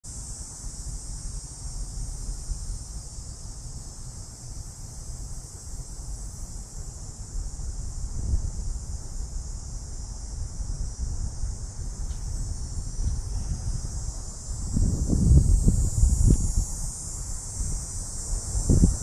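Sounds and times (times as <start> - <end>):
cicadas buzzing: 0.1 - 19.0
wind rumbling on microphone: 7.3 - 19.0.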